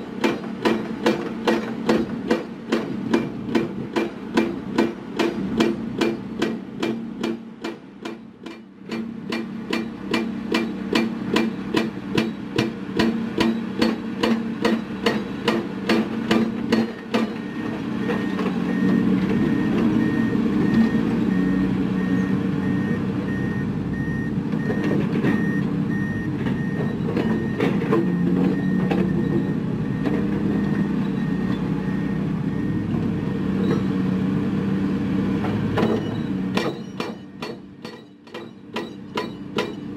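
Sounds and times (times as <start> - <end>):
diesel engine running: 0.0 - 39.9
heavy rhythmic hammering: 0.2 - 17.4, 36.5 - 39.9
truck reversing alarm beeping: 14.6 - 35.0, 35.8 - 39.9.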